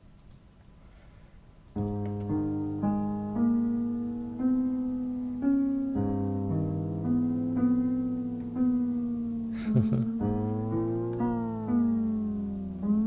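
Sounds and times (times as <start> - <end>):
piano-like keyboard melody: 1.8 - 13.0.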